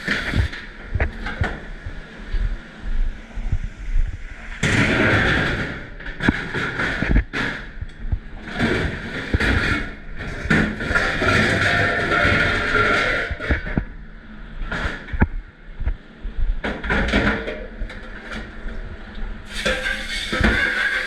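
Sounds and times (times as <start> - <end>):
dishes and trays clattering: 19.5 - 21.0
water spraying hard: 19.5 - 21.0.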